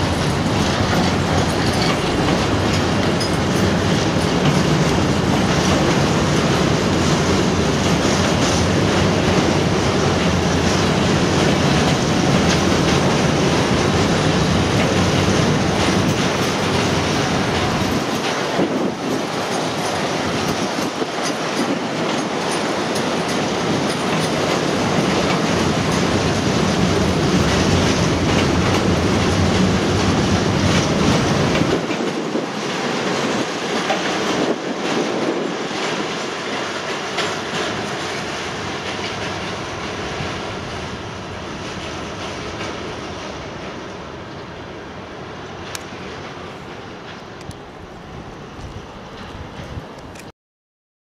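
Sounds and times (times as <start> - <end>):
freight train wheels on rails: 0.0 - 50.3.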